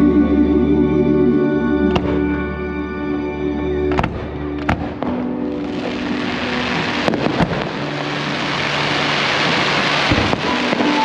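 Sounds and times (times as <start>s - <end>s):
firework shells bursting: 4.0s - 11.0s
firework crackle hiss: 5.5s - 11.0s.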